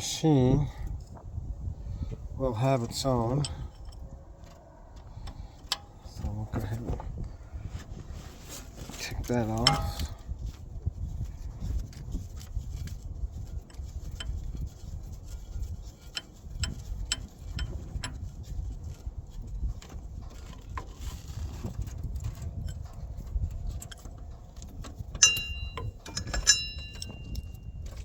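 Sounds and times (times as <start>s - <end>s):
ringing metal clink: 25.2s - 27.6s.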